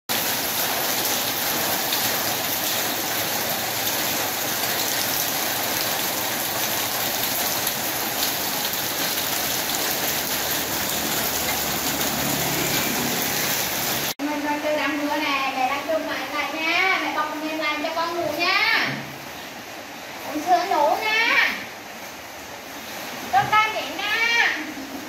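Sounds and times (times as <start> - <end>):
rain on wet pavement: 0.1 - 14.2.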